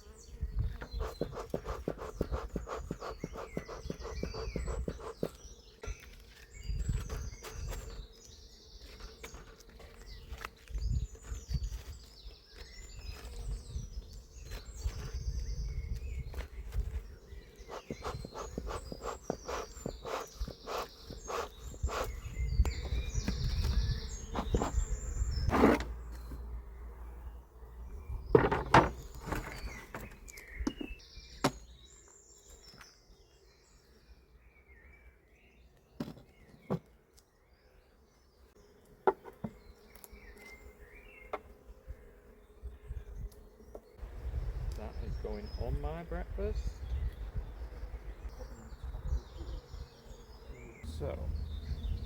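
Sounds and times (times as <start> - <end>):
bees humming: 0.0 - 34.1, 37.5 - 52.0
birds chirping: 0.0 - 52.0
hive frames clicking and knocking: 28.3 - 31.7.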